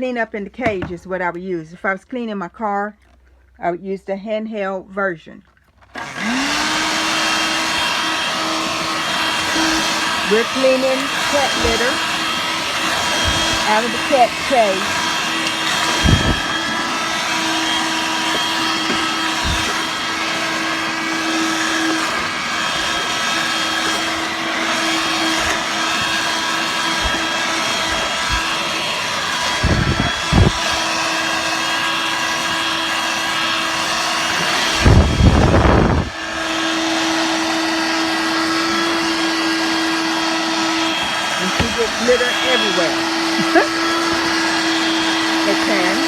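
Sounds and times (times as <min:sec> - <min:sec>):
vacuum cleaner motor whine: 0:05.9 - 0:46.0
litter sucked into vacuum: 0:06.0 - 0:46.0.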